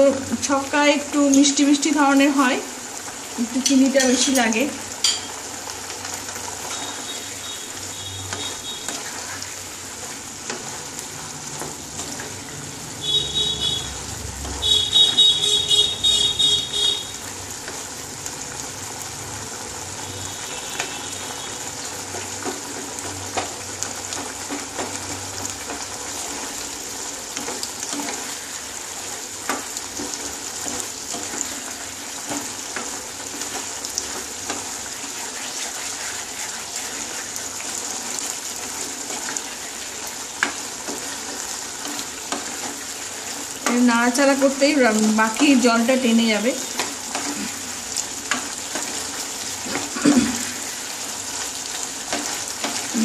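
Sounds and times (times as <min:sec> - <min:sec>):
curry sizzling and bubbling in a pan: 0:00.0 - 0:53.0
wooden spatula scraping a pan: 0:29.5 - 0:43.4.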